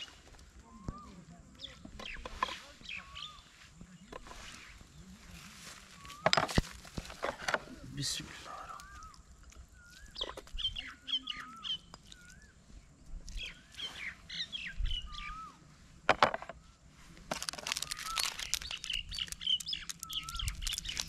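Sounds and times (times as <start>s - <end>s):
birds chirping and whistling: 0.0s - 3.6s, 8.0s - 15.7s, 17.6s - 21.0s
dense crackles: 17.3s - 21.0s.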